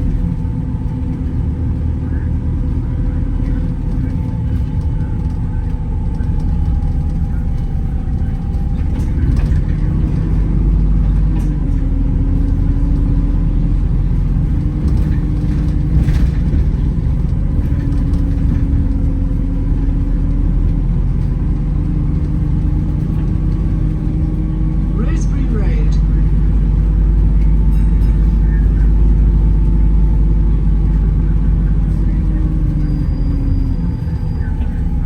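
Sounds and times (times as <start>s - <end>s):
bus drivetrain hum: 0.0s - 35.0s
loud low road rumble: 0.0s - 35.0s
high whine: 23.8s - 32.4s.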